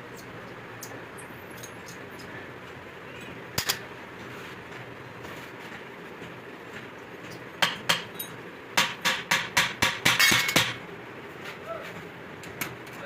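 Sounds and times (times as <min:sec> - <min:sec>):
hammer tapping on metal: 0:07.6 - 0:08.2, 0:08.8 - 0:10.8.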